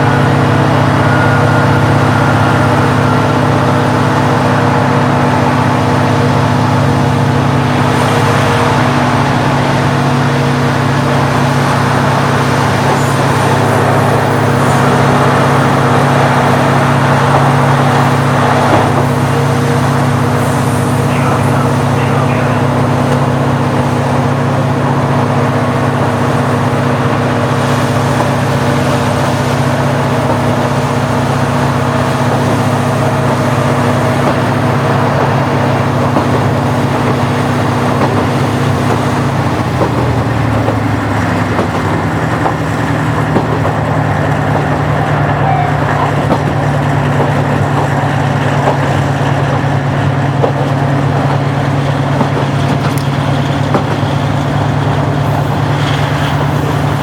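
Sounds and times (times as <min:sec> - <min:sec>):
diesel railcar engine running: 0:00.0 - 0:57.0.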